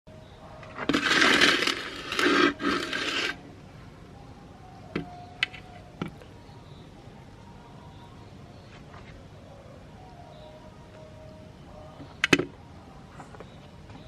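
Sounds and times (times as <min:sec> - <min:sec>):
harsh scraping: 0:00.6 - 0:03.4.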